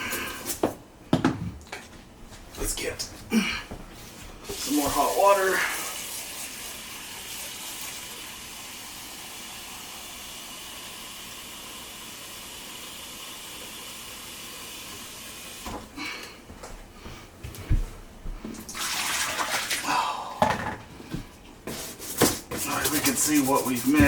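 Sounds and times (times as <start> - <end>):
water running from a tap: 4.5 - 15.8, 18.7 - 20.0.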